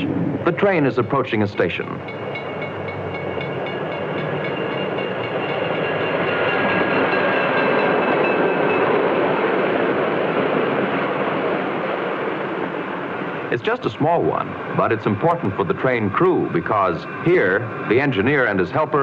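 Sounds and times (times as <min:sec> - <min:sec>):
train wheels rumbling and rattling: 0:00.0 - 0:19.0
faint high steady tones: 0:00.4 - 0:09.0.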